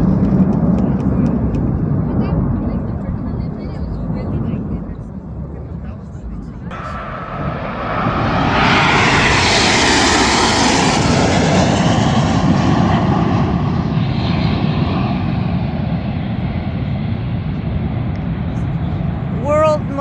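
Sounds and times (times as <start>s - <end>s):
jets flying past: 6.7s - 20.0s.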